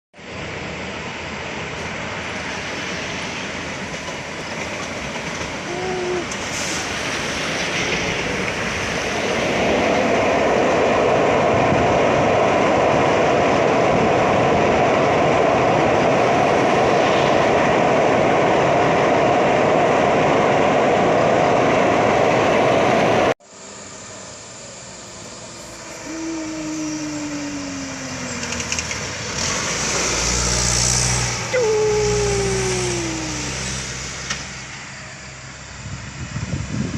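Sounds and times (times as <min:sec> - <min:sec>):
road noise: 0:00.2 - 0:36.9
heavy truck engines: 0:24.1 - 0:36.8
engine revs dropping: 0:27.9 - 0:31.5.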